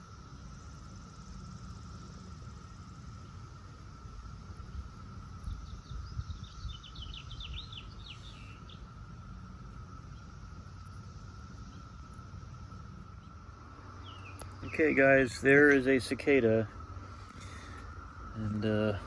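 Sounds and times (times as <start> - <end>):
distant cicada chorus: 0.0 - 19.0
bird chirping: 4.6 - 9.0, 9.9 - 16.6.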